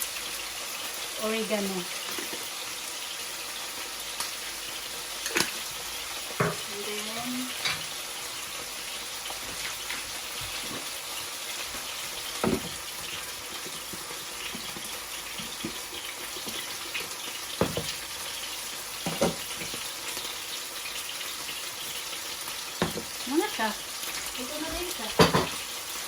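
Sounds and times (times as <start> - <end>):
potatoes sizzling in a pan: 0.0 - 26.0
utensil knocking against pan: 6.4 - 6.7, 12.4 - 12.8, 22.8 - 23.1, 25.2 - 25.6.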